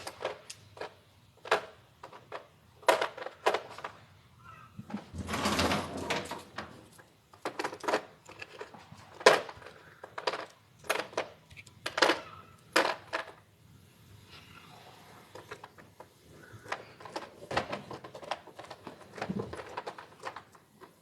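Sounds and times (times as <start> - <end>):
metal tools scraping rattle: 5.1 - 7.0.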